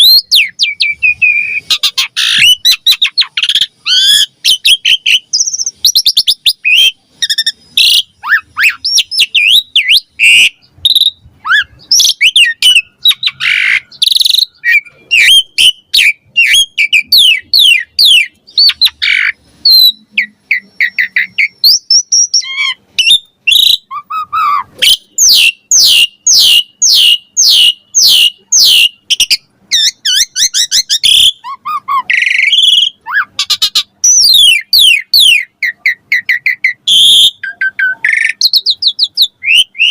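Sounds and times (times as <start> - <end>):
starling singing whistles and chirps: 0.0 - 39.9.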